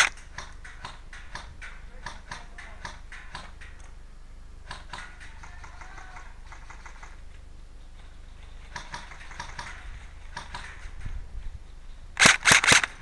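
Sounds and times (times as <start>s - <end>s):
distant airsoft gunfire: 0.0s - 3.8s, 4.6s - 7.2s, 8.7s - 11.0s, 12.2s - 13.0s.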